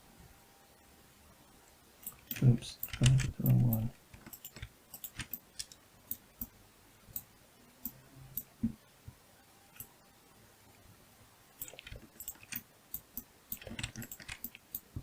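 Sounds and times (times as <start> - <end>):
mouse and keyboard clicks: 2.0 - 6.5, 11.6 - 15.0.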